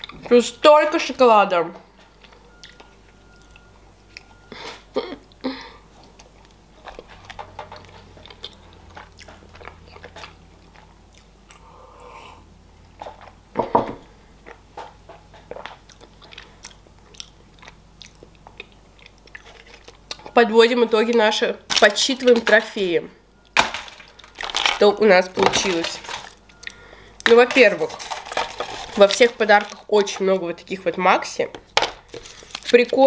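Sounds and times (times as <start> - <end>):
crunchy chewing: 6.0 - 12.2, 15.3 - 20.3.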